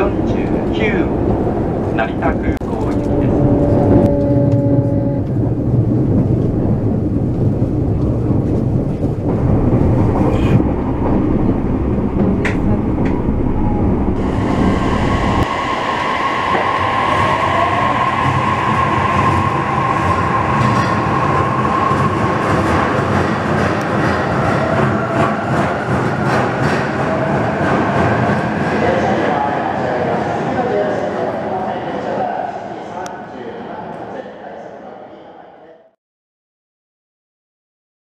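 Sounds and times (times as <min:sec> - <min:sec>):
train rumble inside passenger car: 0:00.0 - 0:32.0
high whine: 0:01.7 - 0:22.8.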